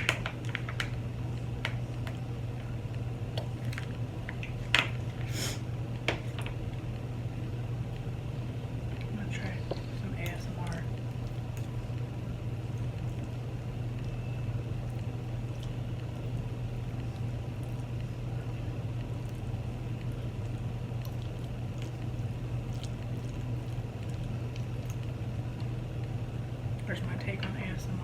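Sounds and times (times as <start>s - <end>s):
wet eating clicks and squishes: 0.0s - 5.3s, 8.8s - 27.4s
steady low hum: 0.0s - 28.0s.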